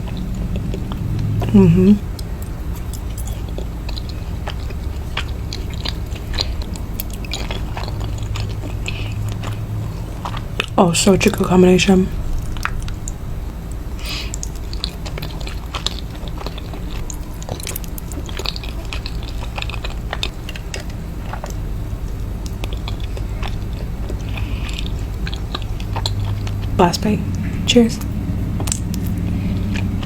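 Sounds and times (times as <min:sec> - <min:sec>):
person chewing and biting: 0:00.0 - 0:10.8, 0:12.2 - 0:26.8, 0:28.4 - 0:30.0
steady low hum: 0:00.0 - 0:30.0
wet mouth clicks and smacks: 0:12.3 - 0:26.7, 0:27.3 - 0:30.0.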